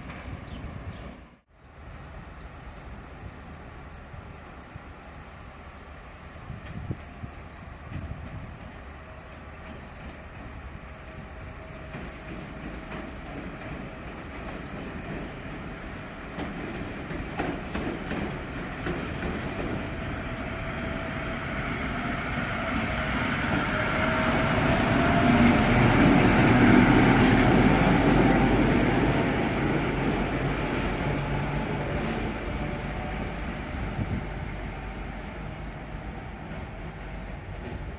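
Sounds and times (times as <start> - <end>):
diesel locomotive engine: 0.0 - 37.9
wheels clattering on rails: 11.6 - 20.0.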